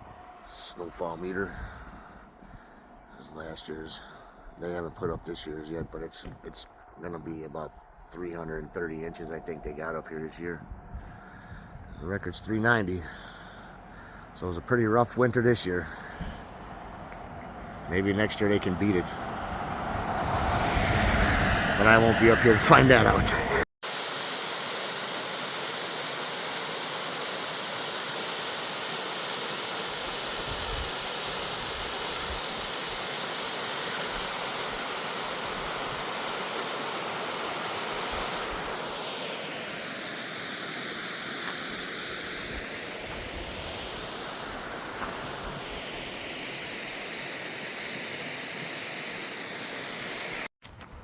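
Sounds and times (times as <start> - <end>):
rushing water: 19.7 - 50.5.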